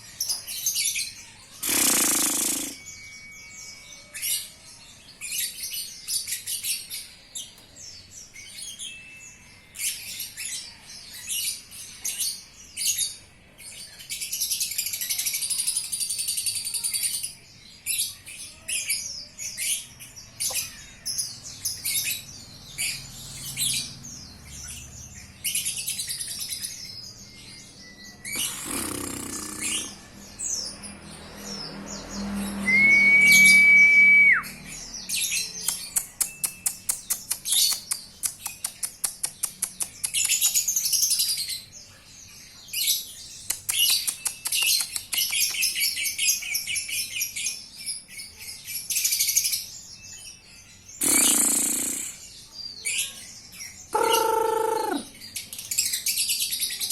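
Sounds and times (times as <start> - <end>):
lovebirds chirping and twittering: 0.0 - 56.9
whistle-like tone: 32.6 - 34.6.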